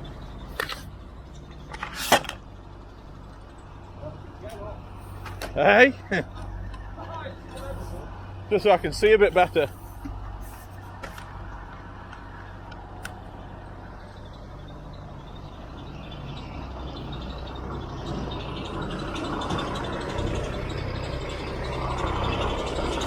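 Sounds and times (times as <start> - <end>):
truck diesel engine running: 0.0 - 23.0.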